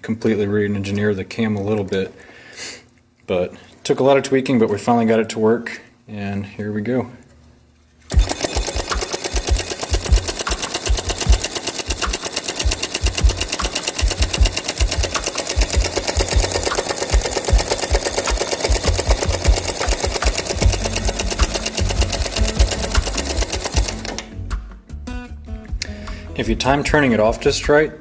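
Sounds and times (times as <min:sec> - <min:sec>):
solenoid engine clattering: 0:08.1 - 0:24.3.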